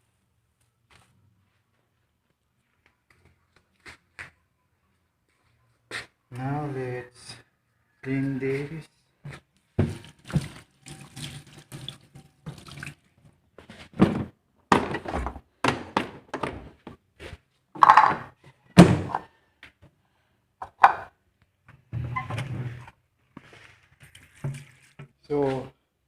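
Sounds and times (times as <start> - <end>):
water splashing: 24.0 - 25.0.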